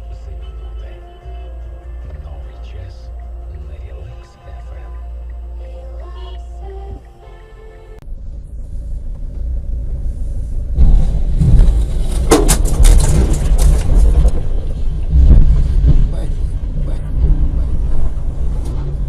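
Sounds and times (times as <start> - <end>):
car driving rumble: 0.0 - 19.0
sharp clatters: 10.8 - 16.4.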